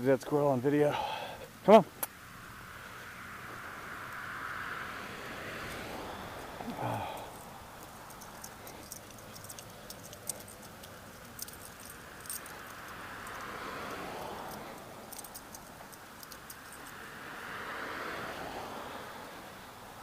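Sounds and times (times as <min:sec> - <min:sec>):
small metal pieces jingling: 0:06.7 - 0:17.0.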